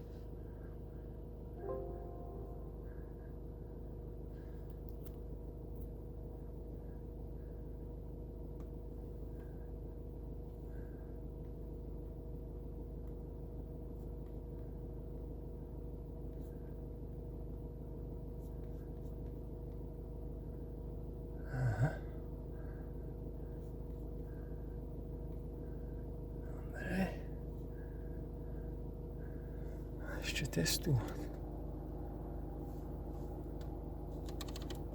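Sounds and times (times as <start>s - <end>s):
low mechanical hum: 0.0s - 34.9s
breathy vocal gasp: 21.4s - 23.0s.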